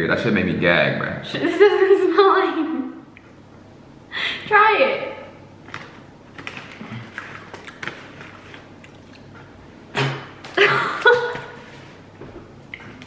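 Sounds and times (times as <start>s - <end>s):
person chewing sweets: 5.9s - 9.7s.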